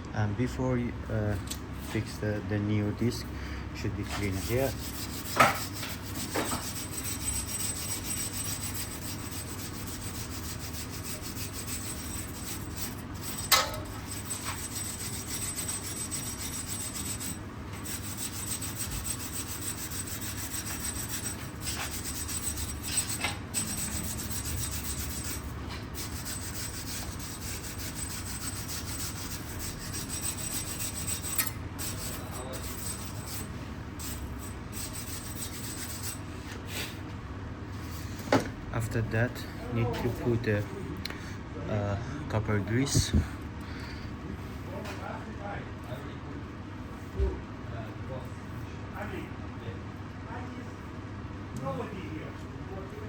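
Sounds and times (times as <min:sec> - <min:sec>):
brush scrubbing metal: 0:03.8 - 0:36.3.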